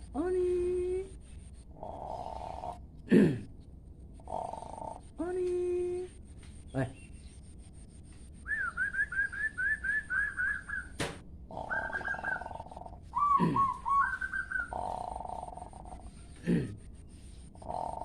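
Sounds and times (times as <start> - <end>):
songbird chirping: 0.0 - 18.0.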